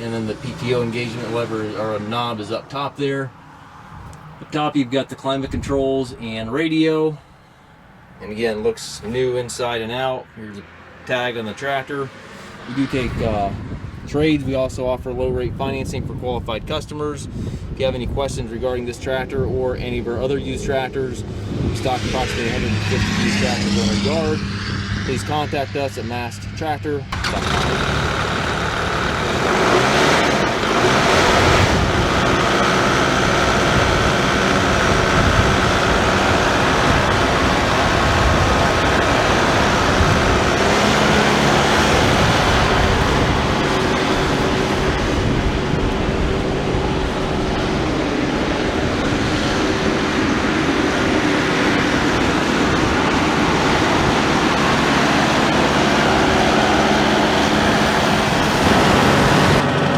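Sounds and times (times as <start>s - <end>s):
diesel engine running: 0.0s - 2.8s, 18.7s - 59.9s.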